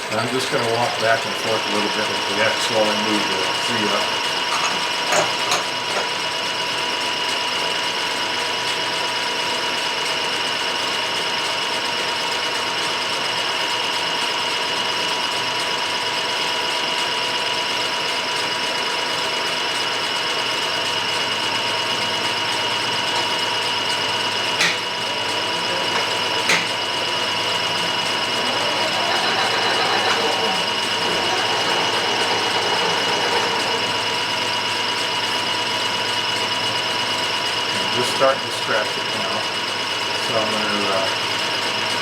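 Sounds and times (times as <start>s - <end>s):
milling machine whining: 0.0s - 6.7s, 19.3s - 42.0s.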